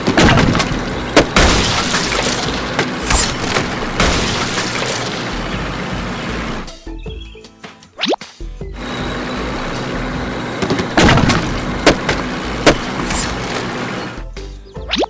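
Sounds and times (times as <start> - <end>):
heavy thuds: 0.0 - 6.6, 9.0 - 14.0
crash and rumble roar: 0.0 - 6.7, 9.1 - 14.0.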